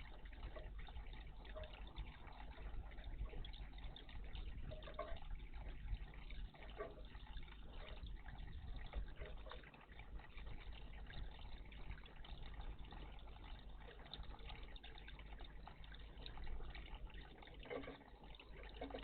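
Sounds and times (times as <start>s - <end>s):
water trickling and splashing: 0.0s - 19.0s.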